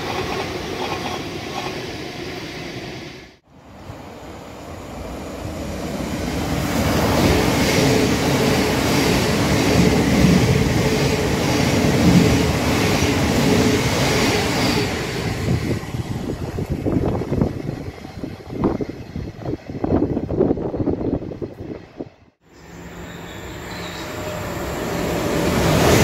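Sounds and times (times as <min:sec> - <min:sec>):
electric train running: 0:22.6 - 0:26.0.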